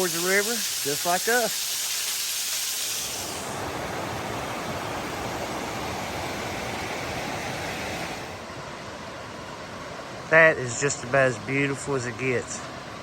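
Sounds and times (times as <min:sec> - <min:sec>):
creek water rushing: 0:03.0 - 0:10.7.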